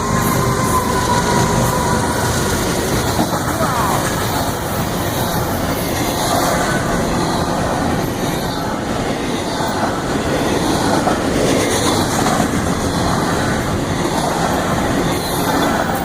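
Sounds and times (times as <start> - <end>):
train wheels clacking on rails: 0.0 - 16.0.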